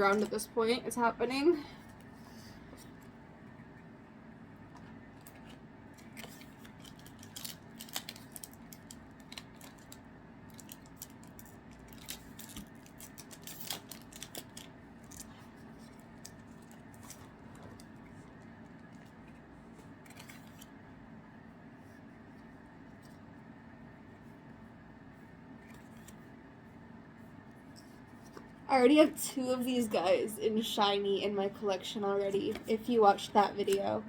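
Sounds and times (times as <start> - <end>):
low room hum: 0.0 - 34.0
cards and foil wrapper handled: 5.2 - 18.0, 20.0 - 20.7.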